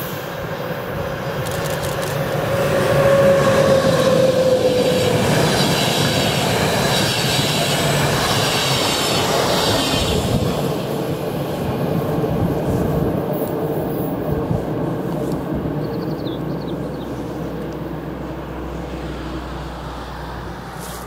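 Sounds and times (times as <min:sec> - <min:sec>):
train wheels on rails: 0:00.0 - 0:18.2.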